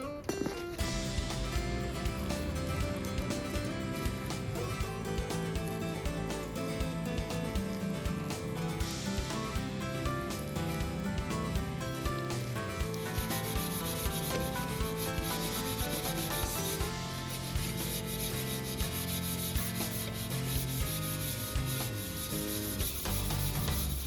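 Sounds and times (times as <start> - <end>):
cloth scrubbing metal: 12.8 - 24.0.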